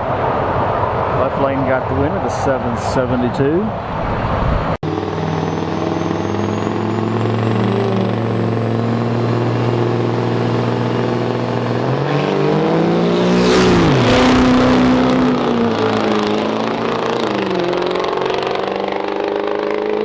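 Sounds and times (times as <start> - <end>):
diesel truck engines running: 0.0 - 20.0
truck engine revving with whine: 0.0 - 20.0.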